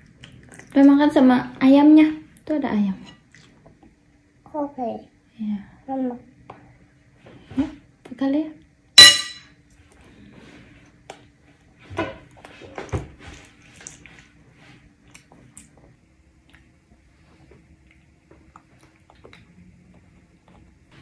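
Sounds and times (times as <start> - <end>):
toddler chewing food: 0.0 - 0.8, 12.2 - 21.0.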